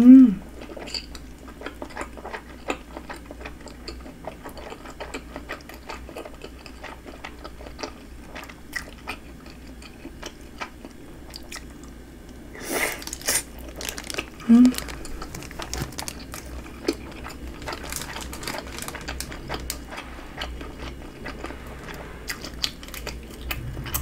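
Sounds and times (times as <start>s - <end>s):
chewing with wet mouth clicks: 0.6s - 12.0s.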